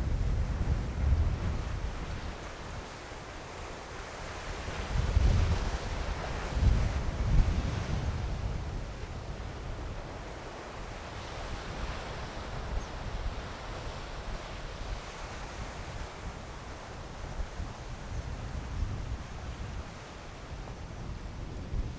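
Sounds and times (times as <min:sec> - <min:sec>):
wind buffeting microphone: 0:00.0 - 0:02.5, 0:04.8 - 0:09.8.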